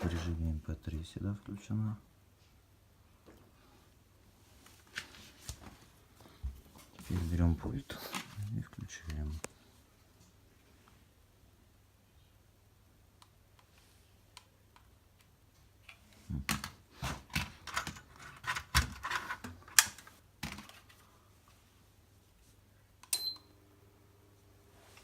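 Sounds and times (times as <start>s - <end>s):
faint steady hum: 0.0s - 25.0s
plastic clicking and clattering: 15.8s - 21.0s.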